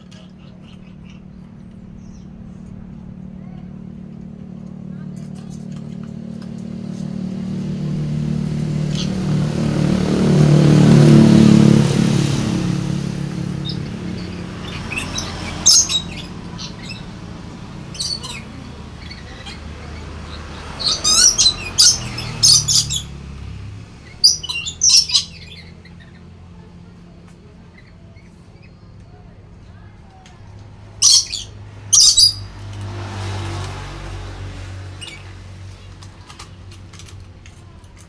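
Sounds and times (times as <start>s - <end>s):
motor vehicle passing: 0.0s - 38.0s
parrot high-pitched calls: 8.8s - 10.4s, 13.1s - 23.2s, 24.0s - 26.2s, 31.0s - 32.5s.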